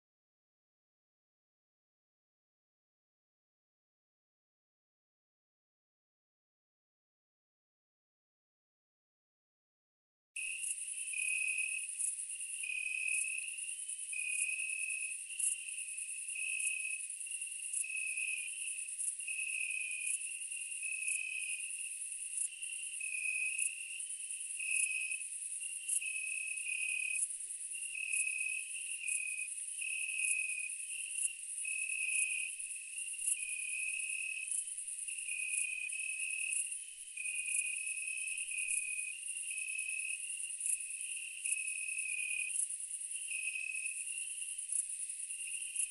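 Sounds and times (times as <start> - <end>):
high-pitched insect trill: 10.4 - 45.9
two-pitch insect chirping: 10.4 - 45.9.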